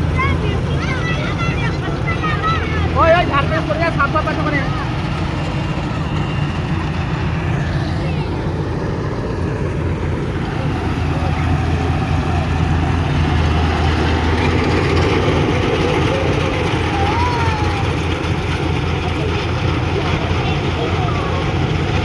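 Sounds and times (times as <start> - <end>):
motor engine humming: 0.0 - 22.0.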